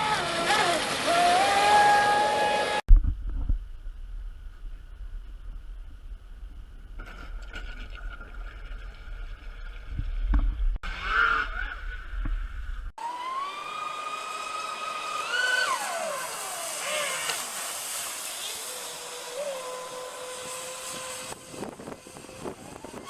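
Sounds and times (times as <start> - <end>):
low rumble: 2.9 - 12.9
model boat motor whine: 13.0 - 23.0.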